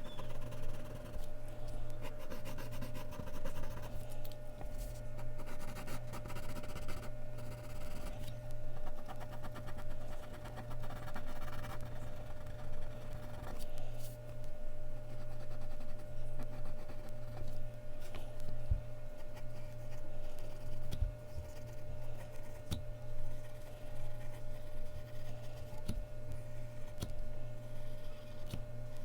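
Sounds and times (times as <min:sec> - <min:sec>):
pencil scratching on paper: 0:00.0 - 0:01.3, 0:02.0 - 0:04.0, 0:05.2 - 0:08.2, 0:08.8 - 0:13.7, 0:15.1 - 0:17.5
steady low hum: 0:00.0 - 0:29.0.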